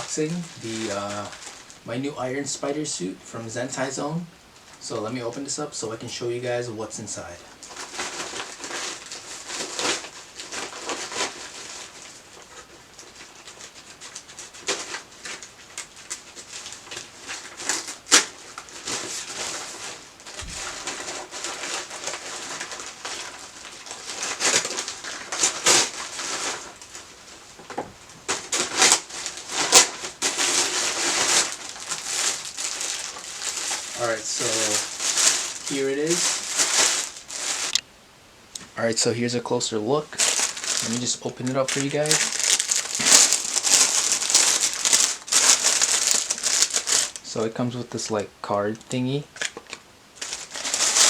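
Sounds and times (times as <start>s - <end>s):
package rustling and crinkling: 0.0s - 1.9s, 7.2s - 37.8s, 39.6s - 51.0s
sharp snaps and clicks: 37.7s - 37.9s.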